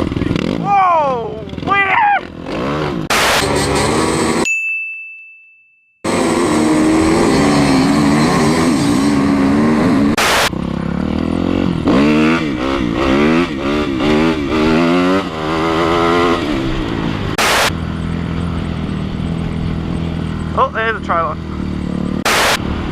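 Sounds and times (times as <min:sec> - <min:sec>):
motorbike engine revving: 0:00.0 - 0:04.5, 0:06.0 - 0:22.9
loud rushing noise: 0:06.1 - 0:10.6, 0:14.1 - 0:17.8, 0:22.2 - 0:22.9.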